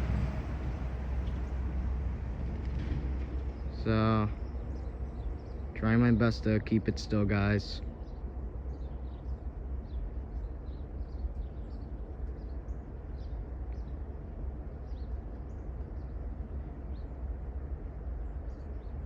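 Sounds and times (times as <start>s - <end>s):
diesel locomotives rumbling: 0.0s - 19.0s
small birds chirping: 3.4s - 19.0s.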